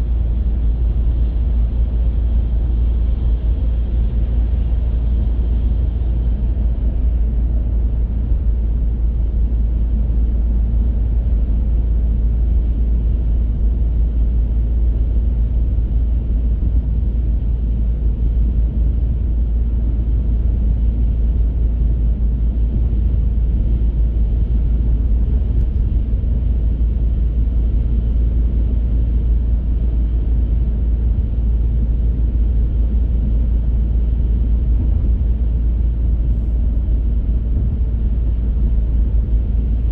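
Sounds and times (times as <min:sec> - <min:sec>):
car engine running: 0:12.5 - 0:39.9.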